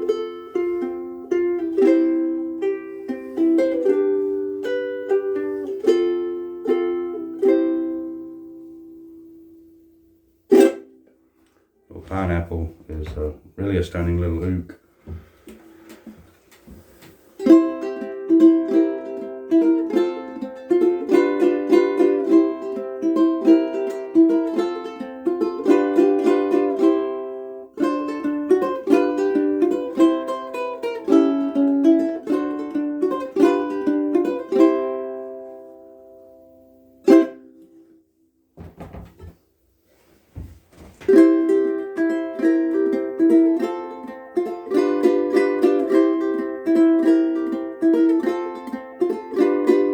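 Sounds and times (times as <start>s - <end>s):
ukulele melody over chords: 0.0s - 11.0s, 17.4s - 38.0s, 41.1s - 49.9s
sharp ukulele stroke: 10.5s - 11.0s
faint knocks: 38.6s - 39.4s.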